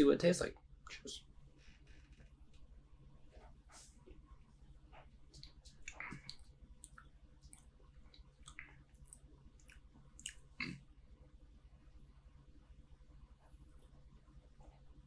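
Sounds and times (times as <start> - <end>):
mouth clicks: 5.4 - 7.7.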